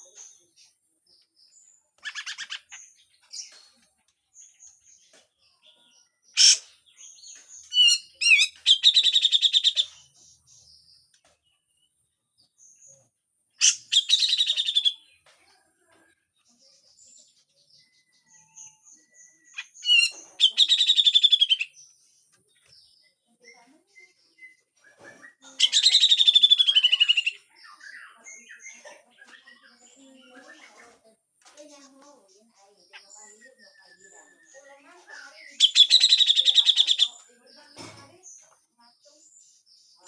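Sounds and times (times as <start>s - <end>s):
bird rasping chattering calls: 2.0s - 3.5s, 6.4s - 6.7s, 7.7s - 9.9s, 13.6s - 15.0s, 19.6s - 21.7s, 25.6s - 27.4s, 35.5s - 37.2s.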